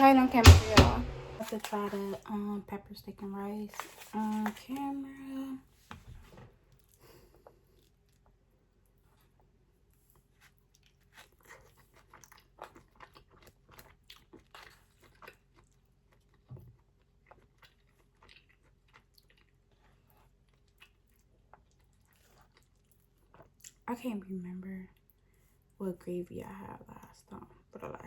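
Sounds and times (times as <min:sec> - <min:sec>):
soft low bump: 0:00.0 - 0:01.4
chewing and mouth smacks: 0:10.4 - 0:23.8.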